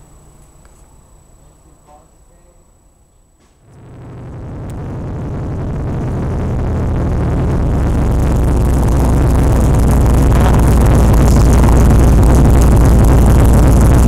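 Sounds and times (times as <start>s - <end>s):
car engine running: 3.7s - 14.0s.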